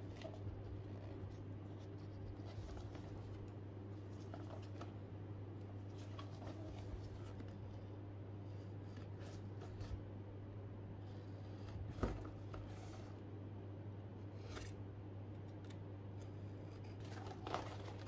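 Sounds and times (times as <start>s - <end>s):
cardboard box being handled: 0.0s - 5.0s, 5.8s - 7.7s, 16.9s - 18.0s
steady low hum: 0.0s - 18.0s.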